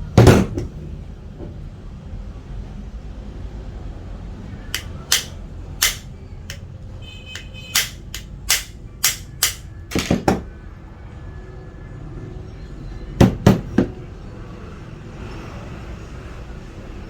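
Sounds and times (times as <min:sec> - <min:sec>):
tools clicking and tapping: 0:04.8 - 0:06.6, 0:07.3 - 0:10.4.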